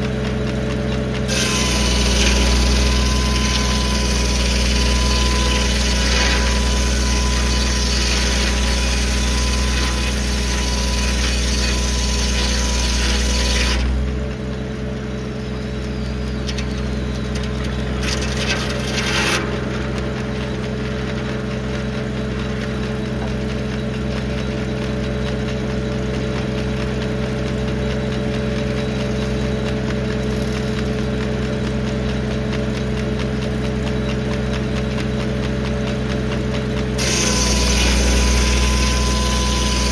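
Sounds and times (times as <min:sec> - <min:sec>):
tractor engine running under load: 0:00.0 - 0:39.9
circular saw blade cutting log: 0:01.2 - 0:14.2, 0:16.0 - 0:23.4, 0:36.3 - 0:39.9.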